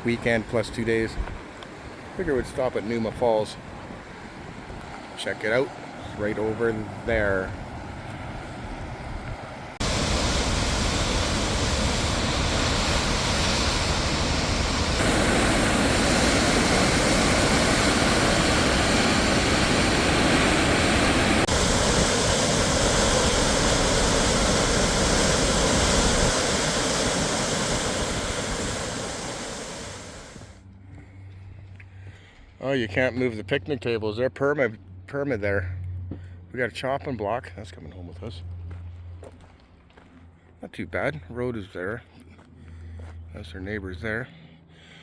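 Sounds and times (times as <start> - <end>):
waterfall rushing: 9.7 - 30.6.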